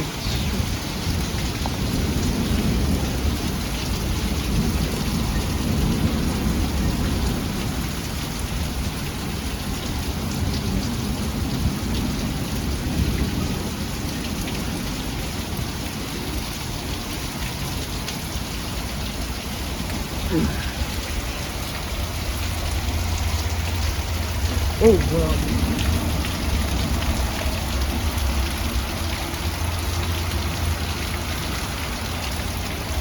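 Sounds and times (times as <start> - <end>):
heavy rain pouring: 0.0 - 33.0
thunder rumbling: 18.9 - 33.0.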